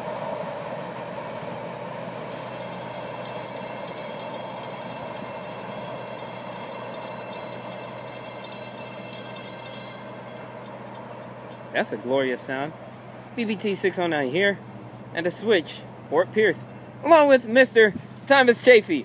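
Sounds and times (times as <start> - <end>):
train wheels on rail: 0.0 - 13.5
thin high ringing tones: 1.5 - 15.0.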